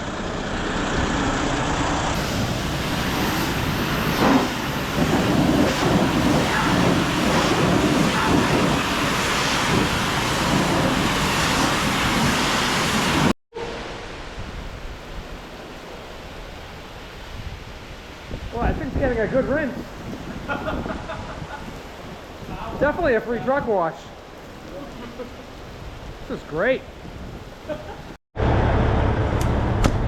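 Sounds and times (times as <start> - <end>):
heavy rain on a truck cab: 0.1 - 13.3.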